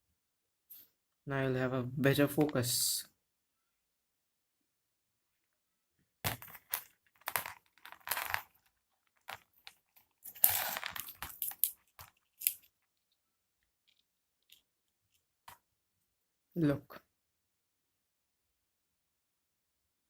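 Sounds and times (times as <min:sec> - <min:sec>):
crinkling handling noises: 0:06.3 - 0:13.2.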